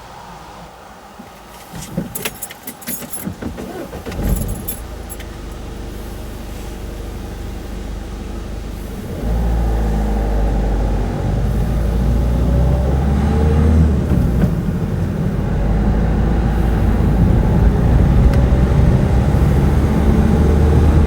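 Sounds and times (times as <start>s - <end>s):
vehicles rattling over crossing: 0.0s - 21.0s
car engine running: 1.4s - 21.0s.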